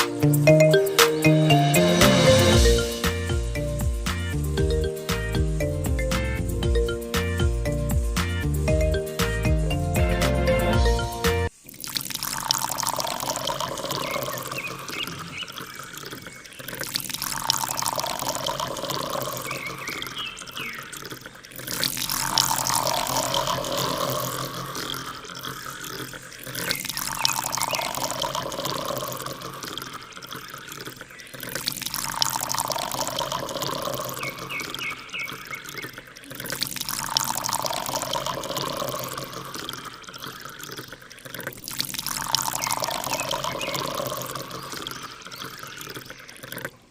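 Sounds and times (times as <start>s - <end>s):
water pouring and splashing: 10.2s - 46.9s.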